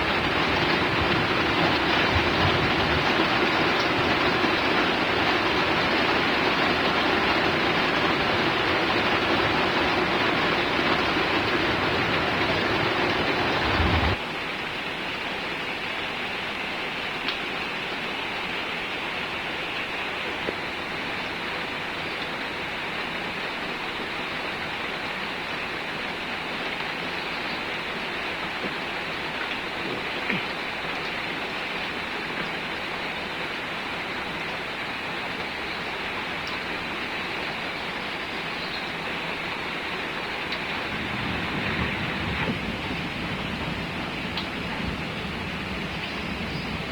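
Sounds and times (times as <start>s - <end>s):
rain hiss: 0.0s - 46.9s
faint drip clicks: 17.2s - 17.4s, 36.4s - 36.7s, 44.3s - 44.6s
low rumble: 40.8s - 46.9s.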